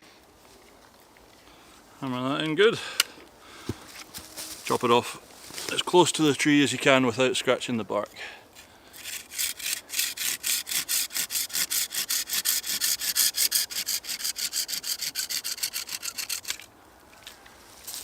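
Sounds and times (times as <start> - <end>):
saw cutting wood: 9.0 - 16.6.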